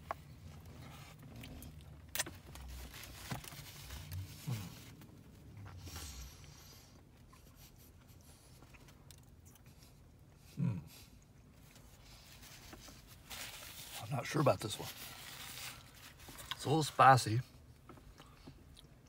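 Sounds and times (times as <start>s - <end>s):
person chewing: 17.9s - 19.0s.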